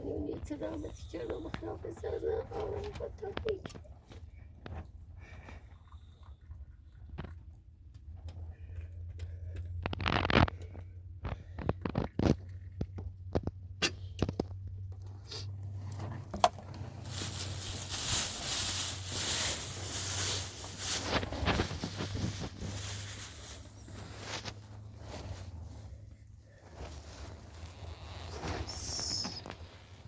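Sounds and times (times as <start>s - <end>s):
crackling rustling hiss: 15.6s - 26.0s, 26.6s - 30.0s.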